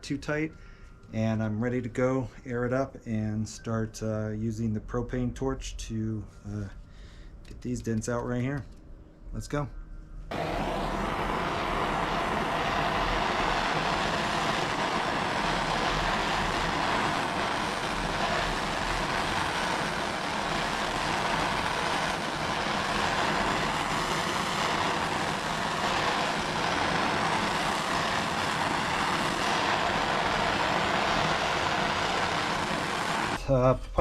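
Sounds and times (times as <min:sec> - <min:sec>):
propane torch flame rushing: 0:10.3 - 0:33.4.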